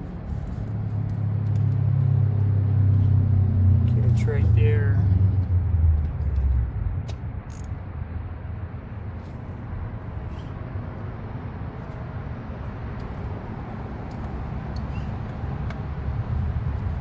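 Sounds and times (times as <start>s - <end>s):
metal socket clicks: 7.5s - 7.8s.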